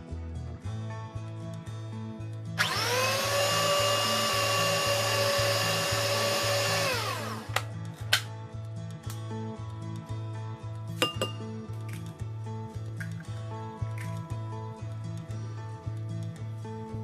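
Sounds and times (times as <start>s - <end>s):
background music with steady beat: 0.0s - 17.0s
stand mixer motor whirring: 2.6s - 7.5s.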